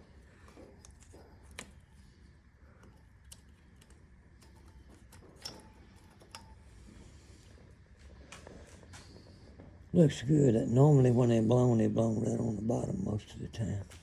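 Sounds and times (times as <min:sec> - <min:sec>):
light clicks of metal tools: 0:00.1 - 0:09.8.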